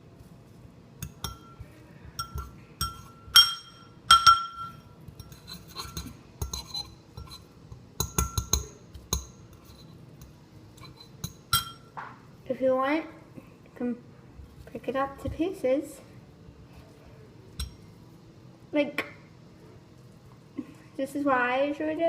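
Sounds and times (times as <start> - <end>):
utensil clinking against bowl: 1.0 - 12.0.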